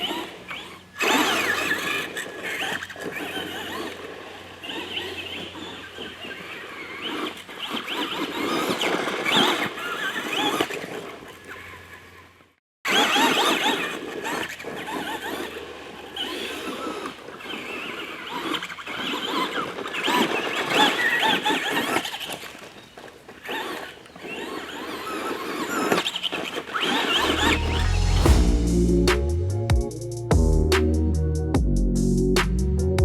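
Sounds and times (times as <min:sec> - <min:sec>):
tyres on rough track: 0:00.0 - 0:29.3
electric motor whining: 0:23.4 - 0:29.2.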